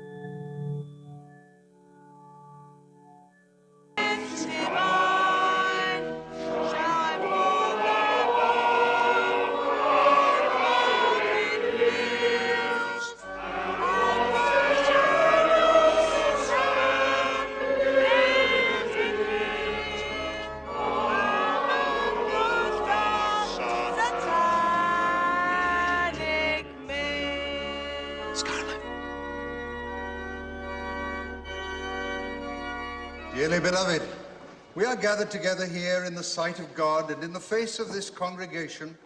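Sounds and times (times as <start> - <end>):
choir singing in harmony: 4.0 - 31.6.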